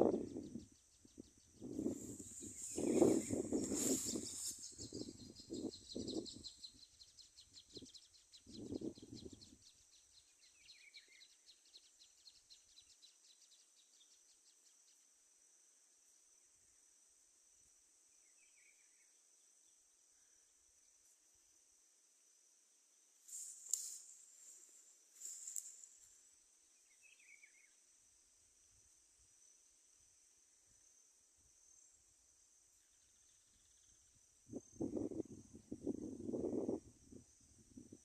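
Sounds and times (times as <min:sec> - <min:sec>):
fast pulsing chirr: 0:00.0 - 0:07.9
faint bird chirps: 0:00.0 - 0:17.0, 0:18.0 - 0:21.4, 0:23.3 - 0:28.9, 0:30.4 - 0:37.9
high-pitched insect drone: 0:01.6 - 0:06.9
rustling: 0:01.9 - 0:04.8, 0:23.3 - 0:26.2.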